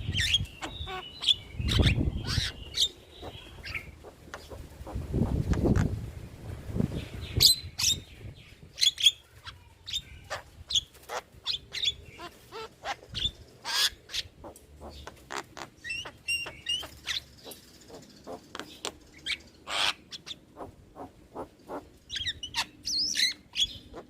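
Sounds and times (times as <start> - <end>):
bird chirping and whistling: 0.1 - 3.9.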